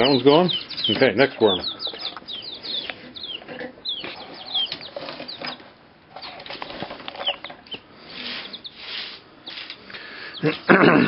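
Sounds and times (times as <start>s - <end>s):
wings flapping and scuffling: 0.0s - 9.8s
chicks peeping: 0.0s - 10.8s.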